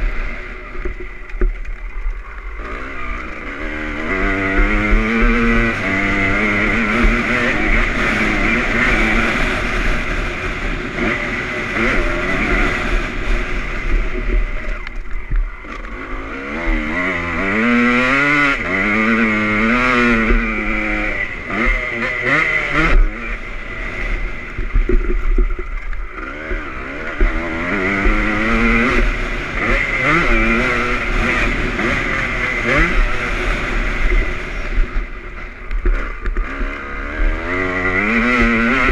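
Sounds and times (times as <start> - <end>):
two-stroke motorcycle engine revving: 0.0 - 38.9.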